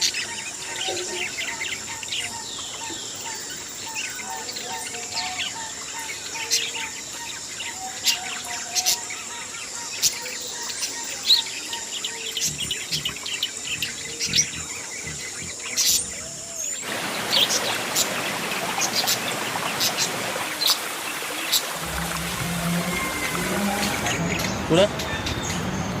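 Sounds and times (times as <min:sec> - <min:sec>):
high insect-like drone: 0:21.8 - 0:24.9.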